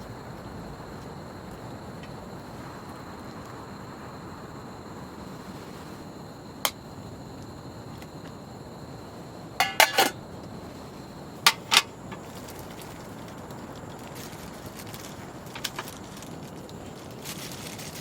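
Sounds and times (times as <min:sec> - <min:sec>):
background hiss: 0:00.0 - 0:18.0
dishes clinking: 0:09.6 - 0:10.2.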